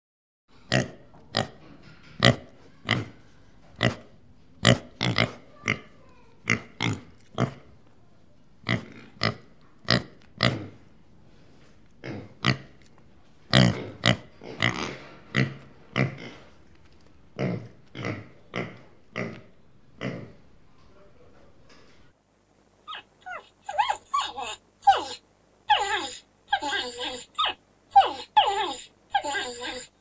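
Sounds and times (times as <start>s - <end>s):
animal short sharp calls: 22.9s - 29.9s.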